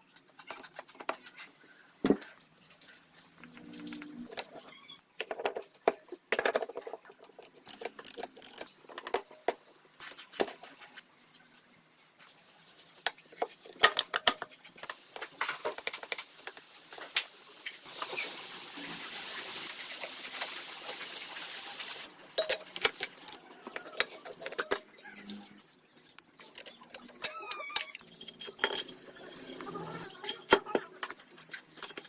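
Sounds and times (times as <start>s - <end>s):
metal tools clinking: 3.7s - 9.3s, 10.0s - 11.0s, 22.4s - 32.0s.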